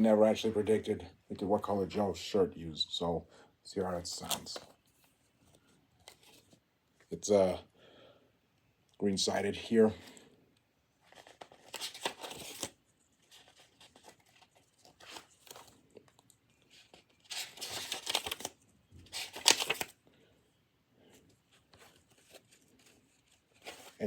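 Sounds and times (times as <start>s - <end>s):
paper rustling and crinkling: 4.1s - 6.6s, 11.0s - 20.0s, 21.0s - 24.0s.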